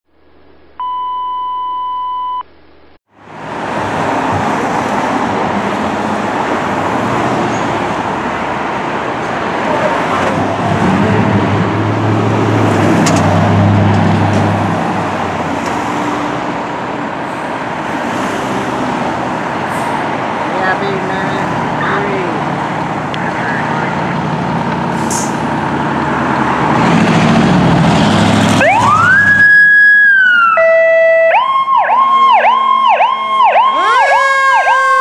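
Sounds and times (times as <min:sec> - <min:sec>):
electronic beep tone: 0:00.8 - 0:02.5
road traffic noise: 0:03.0 - 0:35.0
heavy vehicle engine rumble: 0:03.1 - 0:29.4.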